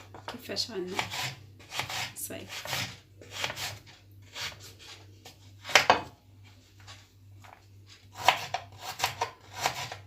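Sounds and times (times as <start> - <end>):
knife cutting on wooden board: 0.9 - 5.0, 8.1 - 10.0.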